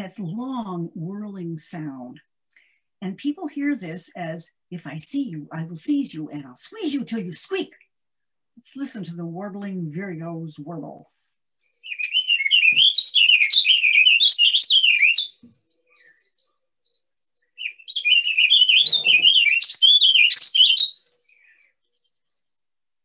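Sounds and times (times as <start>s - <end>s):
songbird warbling: 11.8s - 22.4s.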